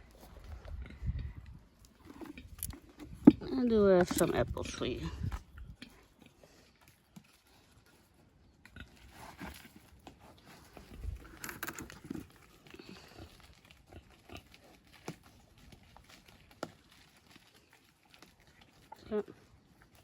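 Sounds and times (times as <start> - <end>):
animals chewing: 0.0 - 20.0.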